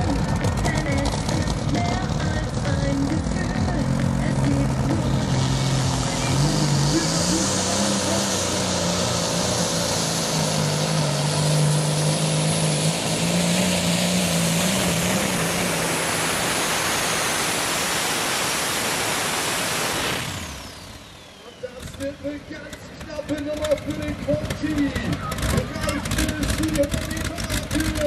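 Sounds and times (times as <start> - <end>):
tractor engine running hard: 0.0 - 28.0
exhaust hiss: 4.4 - 10.0.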